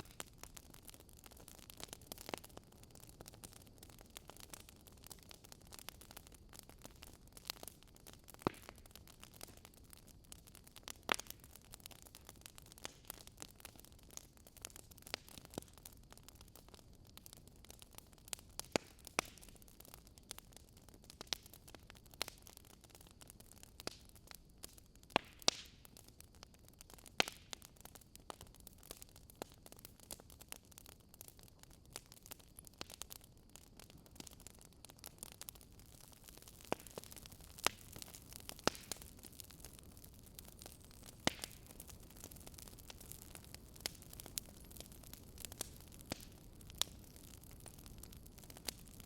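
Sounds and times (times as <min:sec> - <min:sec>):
faint steady hiss: 0:00.0 - 0:49.0
wood fire crackling: 0:00.0 - 0:49.0.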